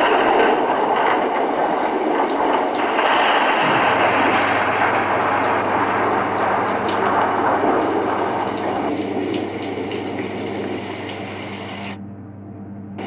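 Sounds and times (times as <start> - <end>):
heavy rain pouring: 0.0 - 12.0
steady low hum: 0.0 - 13.0.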